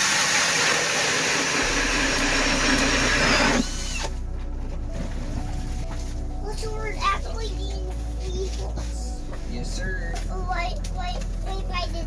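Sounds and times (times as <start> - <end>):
power ice auger grinding: 0.0 - 4.3.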